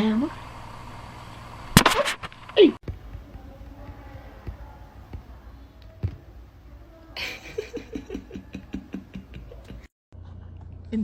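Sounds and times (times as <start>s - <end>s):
person laughing: 7.2s - 10.6s.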